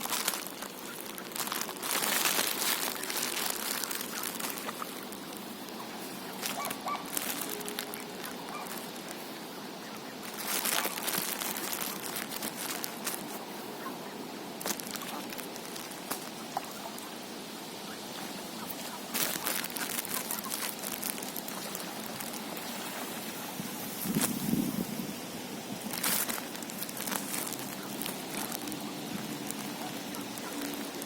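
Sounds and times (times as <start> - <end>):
ducks splashing in water: 17.9 - 23.4.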